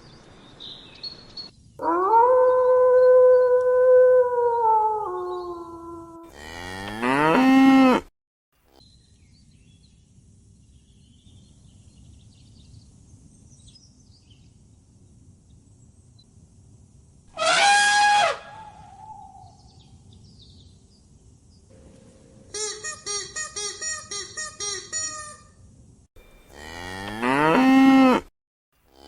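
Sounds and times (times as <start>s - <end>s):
cow mooing: 6.3s - 8.1s, 26.4s - 28.3s.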